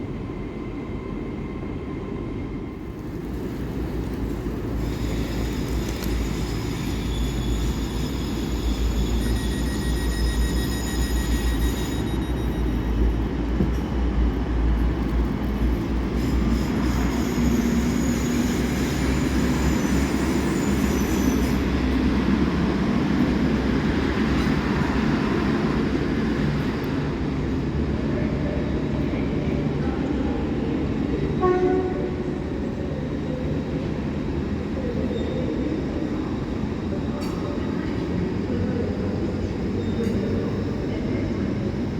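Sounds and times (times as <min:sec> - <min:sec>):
train rumbling: 0:00.0 - 0:41.9
train horn toot: 0:31.4 - 0:32.3.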